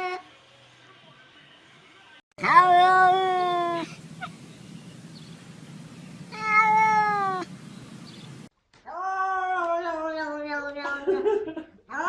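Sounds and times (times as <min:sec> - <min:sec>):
cat meowing: 0:02.4 - 0:05.2, 0:06.2 - 0:07.6
faint low hum: 0:02.4 - 0:08.5.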